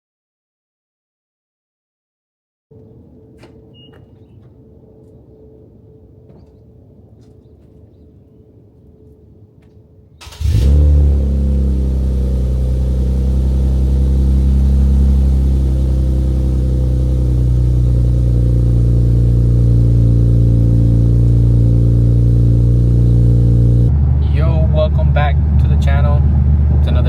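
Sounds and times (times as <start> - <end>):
car engine starting and idling: 10.2 - 27.0.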